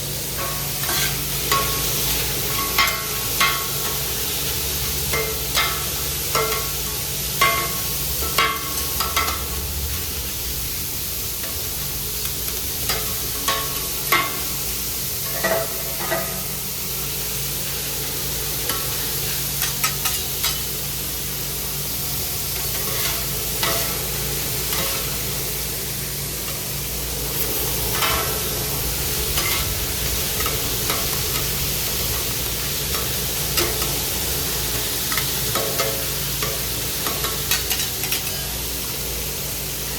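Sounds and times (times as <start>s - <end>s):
food sizzling in a pan: 0.0s - 39.9s
metal utensils clinking and scraping: 0.4s - 3.6s, 35.1s - 38.5s.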